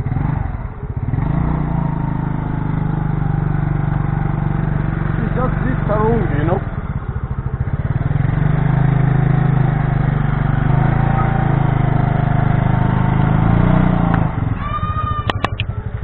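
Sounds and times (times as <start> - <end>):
motorcycle engine running: 0.0 - 16.0
sharp clicks: 15.2 - 15.8.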